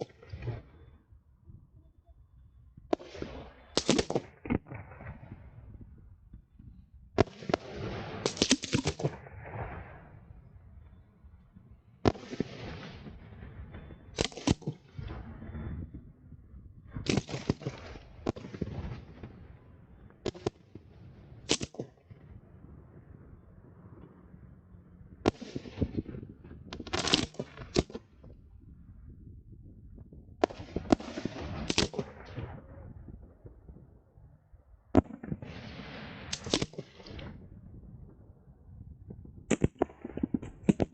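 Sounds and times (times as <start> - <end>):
fireworks crackling: 2.9 - 5.2, 7.2 - 10.1, 12.1 - 15.4, 17.0 - 19.4, 20.2 - 22.1, 25.3 - 28.1, 30.4 - 33.6, 35.0 - 37.5
fireworks bangs: 2.9 - 5.9, 7.2 - 10.6, 12.0 - 16.2, 16.9 - 24.4, 25.1 - 28.3, 30.4 - 33.9, 35.0 - 38.3, 39.1 - 40.9
fireworks rushing hiss: 35.4 - 37.2.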